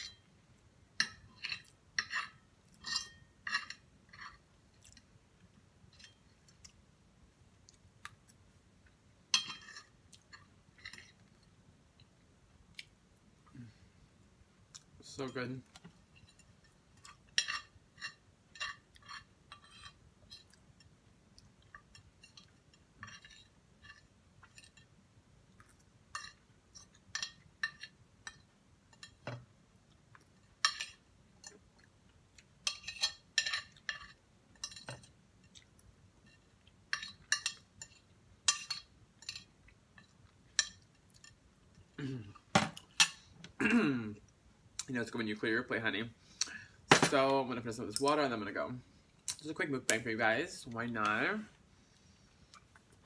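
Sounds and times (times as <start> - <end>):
utensil clinking on a plate: 1.0 - 4.4.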